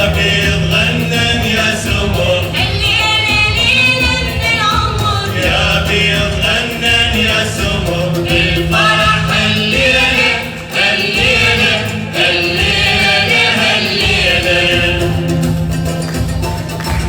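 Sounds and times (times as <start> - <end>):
choir singing with instruments: 0.0 - 17.0
hand percussion: 0.0 - 17.0.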